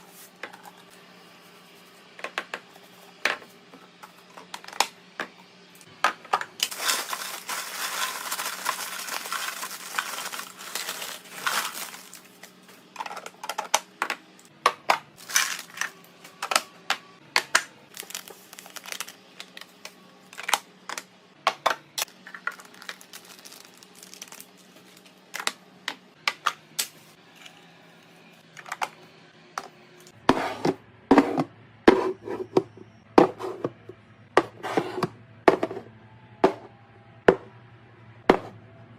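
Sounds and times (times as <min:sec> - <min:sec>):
packaging crinkling: 0:06.6 - 0:12.6, 0:17.9 - 0:19.6, 0:22.4 - 0:25.1.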